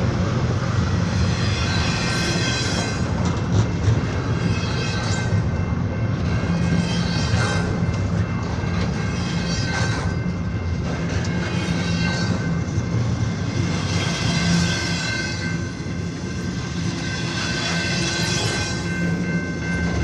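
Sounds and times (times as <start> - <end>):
train rumbling past: 0.0 - 20.0.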